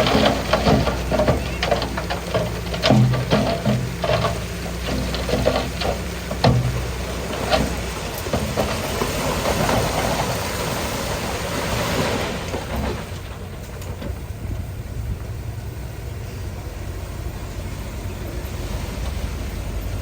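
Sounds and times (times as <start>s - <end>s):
stone clanking: 0.0s - 9.9s
rock grinding over rock: 0.0s - 10.4s
diesel engine running: 0.0s - 20.0s.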